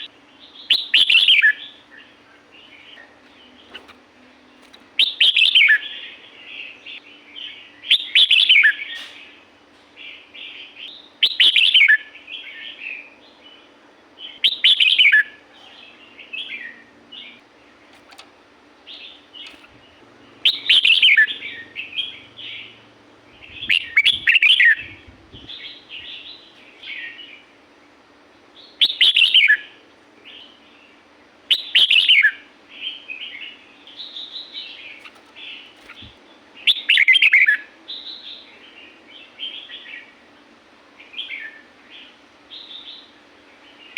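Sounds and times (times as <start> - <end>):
bulbul singing whistled phrases: 0.0 - 2.1, 5.0 - 6.3, 10.5 - 13.1, 14.2 - 15.4, 18.9 - 22.8, 23.4 - 27.3, 28.6 - 30.5, 31.5 - 35.1, 35.8 - 38.5.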